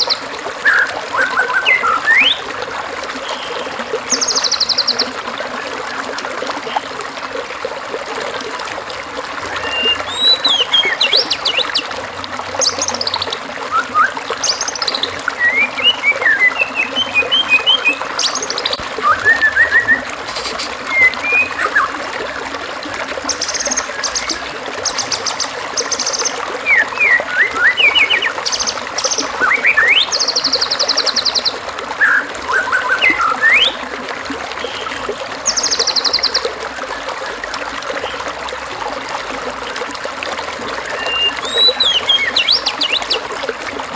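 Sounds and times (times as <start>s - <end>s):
running water rushing: 0.0s - 43.9s
songbird singing: 9.5s - 11.8s, 12.6s - 22.0s, 23.3s - 33.8s, 40.9s - 43.2s.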